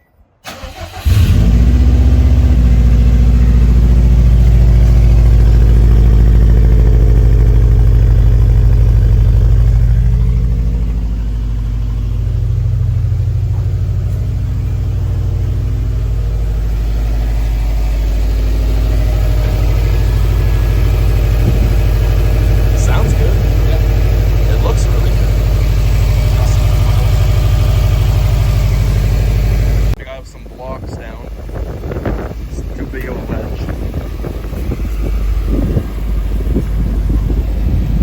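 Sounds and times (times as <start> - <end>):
car engine idling: 0.4 - 38.0.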